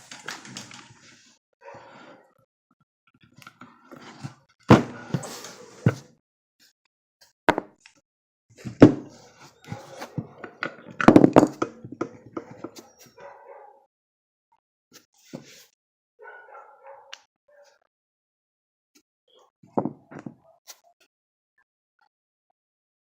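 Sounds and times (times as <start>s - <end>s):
hard objects knocking and clattering: 8.6s - 12.9s, 19.8s - 20.4s.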